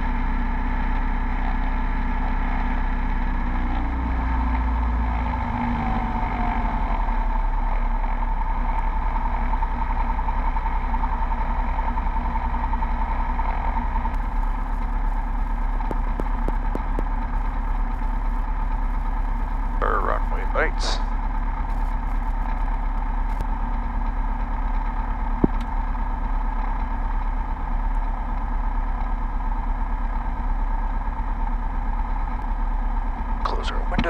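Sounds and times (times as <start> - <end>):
piston engine and propeller running: 0.0 - 34.0
sharp clicks: 15.8 - 17.5.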